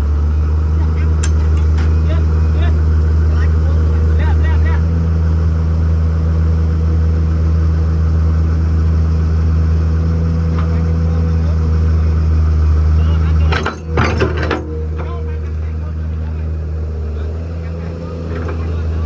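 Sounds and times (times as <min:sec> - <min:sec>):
diesel engine running: 0:00.0 - 0:19.0
sharp clattering: 0:01.1 - 0:02.0.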